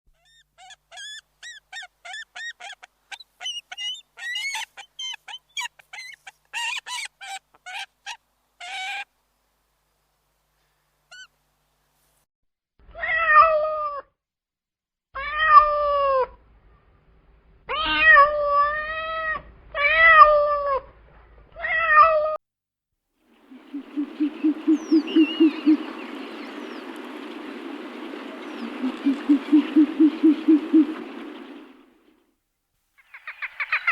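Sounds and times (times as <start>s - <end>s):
high-pitched squeaky calls: 0.1s - 9.1s.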